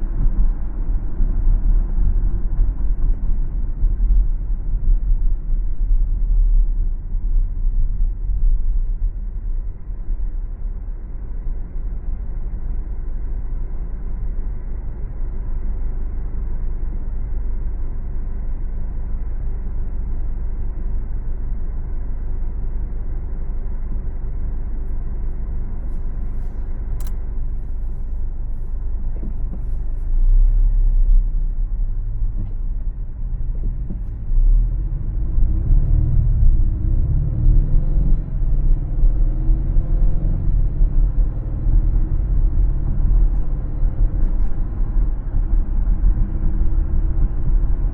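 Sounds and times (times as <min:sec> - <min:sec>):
car engine and road noise: 0:00.0 - 0:47.9
sharp click: 0:26.9 - 0:27.3.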